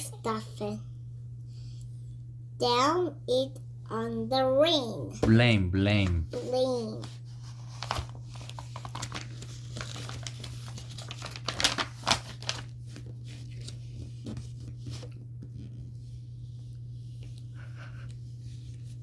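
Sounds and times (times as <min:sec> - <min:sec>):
steady low hum: 0:00.0 - 0:08.6
crinkling and rustling handling: 0:05.9 - 0:15.9.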